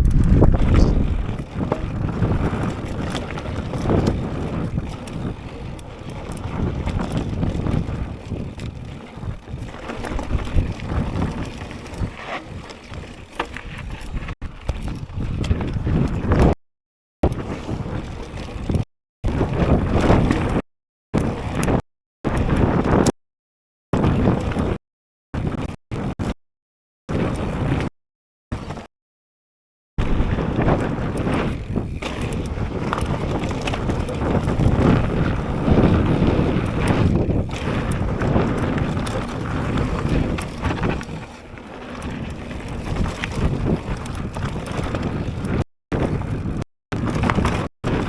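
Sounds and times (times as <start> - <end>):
bike clicks and rattles: 0.0 - 16.6, 17.2 - 20.6, 21.2 - 23.1, 24.0 - 24.8, 25.4 - 26.3, 27.1 - 27.9, 28.5 - 28.9, 30.0 - 48.0
tyres on rough trail: 0.0 - 16.6, 17.2 - 20.6, 21.2 - 23.1, 30.0 - 48.0
wind buffeting microphone: 0.0 - 16.6, 30.0 - 48.0.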